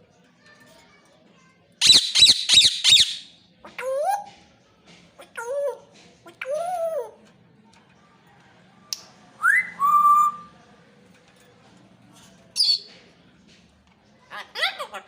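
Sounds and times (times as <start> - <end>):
parrot whistling: 1.8 - 3.3
parrot chirp: 1.8 - 4.2.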